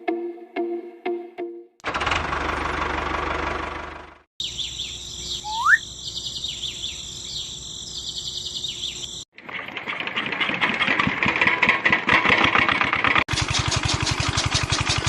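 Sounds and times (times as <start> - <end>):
small engine running: 1.8 - 15.0
birds chirping and twittering: 4.4 - 9.3
loud rising whistle: 5.4 - 5.9.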